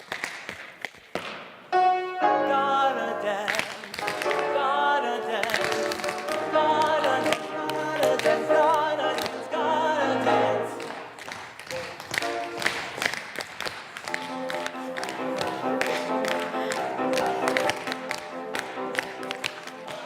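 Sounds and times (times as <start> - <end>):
musical accompaniment: 1.7 - 13.3, 14.0 - 20.0
group singing a show tune: 2.4 - 11.2.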